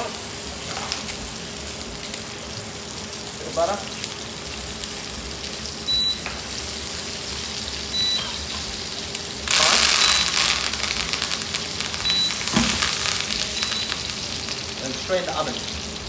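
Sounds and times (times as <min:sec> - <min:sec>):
meat sizzling in a pan: 0:00.0 - 0:16.0
short high beep: 0:09.5 - 0:10.6.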